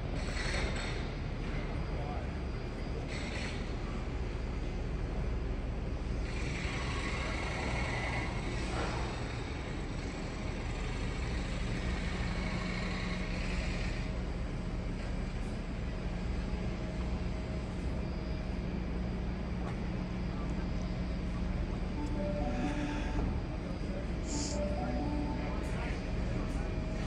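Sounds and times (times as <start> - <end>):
train low hum and rumble: 0.0 - 27.0
train hiss: 24.1 - 25.4.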